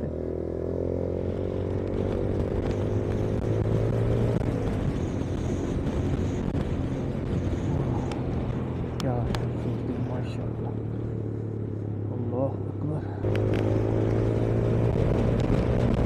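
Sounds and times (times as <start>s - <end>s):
motorcycle engine running: 0.0s - 16.0s
wind on microphone: 1.7s - 9.9s.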